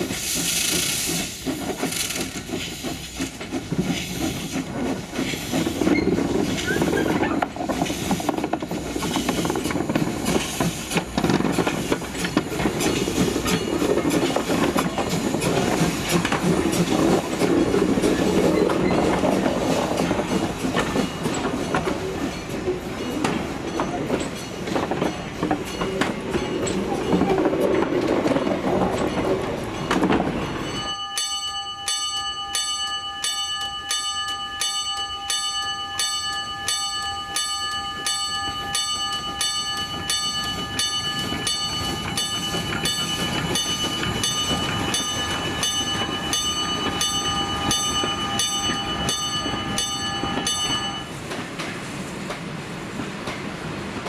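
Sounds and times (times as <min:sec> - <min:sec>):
steam locomotive exhaust: 0:00.0 - 0:23.4
wheels clattering on rails: 0:00.0 - 0:54.0
level crossing warning bell: 0:29.0 - 0:51.2.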